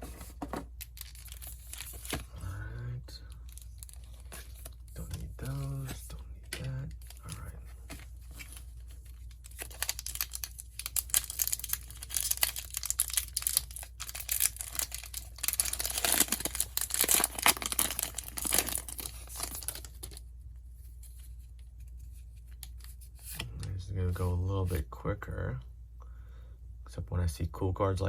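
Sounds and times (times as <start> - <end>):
wrapper tearing and crinkling: 0.8 - 2.2, 8.3 - 20.2.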